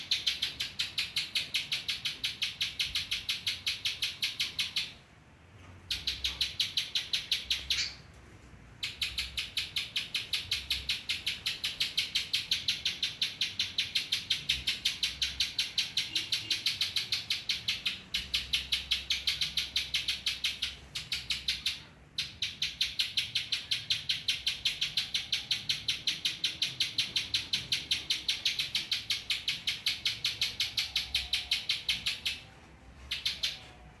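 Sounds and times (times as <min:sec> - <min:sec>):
bird singing rapid high notes: 0:08.8 - 0:32.5.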